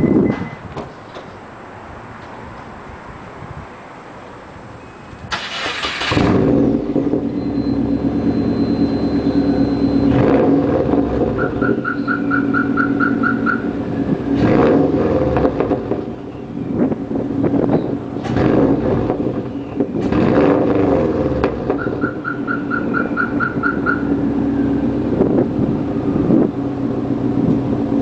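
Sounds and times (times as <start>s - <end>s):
quick beeps: 0.0s - 0.6s, 7.3s - 10.2s
car engine exhaust drone: 4.6s - 28.0s.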